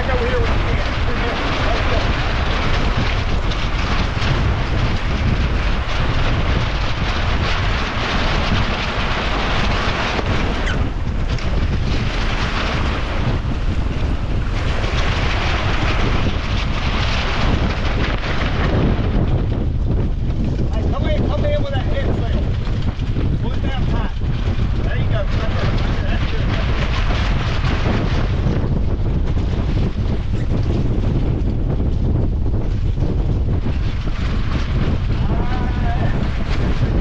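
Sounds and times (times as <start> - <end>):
gusty wind buffeting microphone: 0.0 - 37.0.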